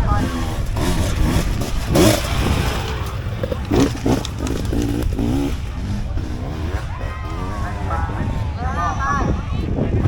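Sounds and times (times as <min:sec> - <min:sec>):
motorcycle engines revving: 0:00.0 - 0:10.0
spectators chattering: 0:00.0 - 0:10.0.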